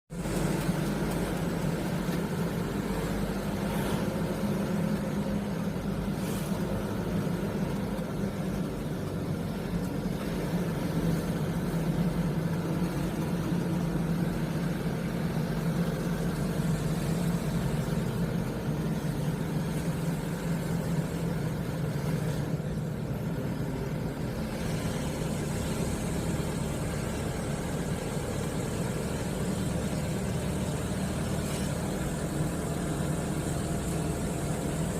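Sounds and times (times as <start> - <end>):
road noise: 0.1 - 34.9
truck diesel engine running: 0.1 - 34.9.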